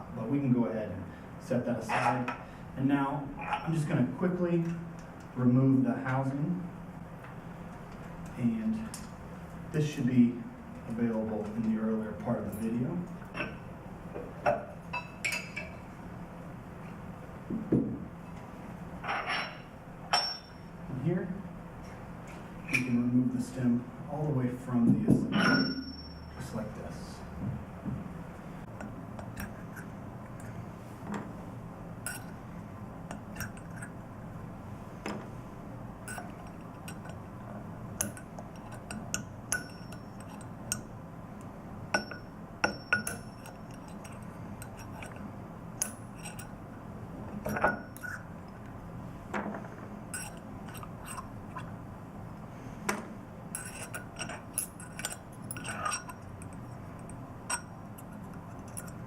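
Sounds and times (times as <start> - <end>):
steady low hum: 0.0 - 59.0
metal parts and tools clinking: 36.0 - 37.2, 42.0 - 46.6, 47.4 - 48.3, 50.1 - 51.7, 53.5 - 59.0.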